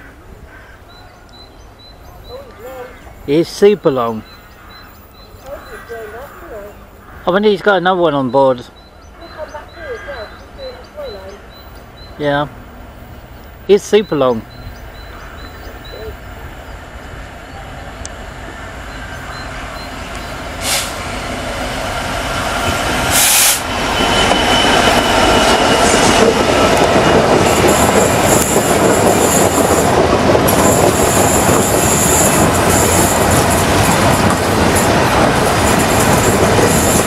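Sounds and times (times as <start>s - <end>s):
diesel locomotive passing: 0.0s - 37.0s
wagons rumbling over rails: 0.0s - 37.0s
high-pitched wheel squeal: 22.5s - 26.2s.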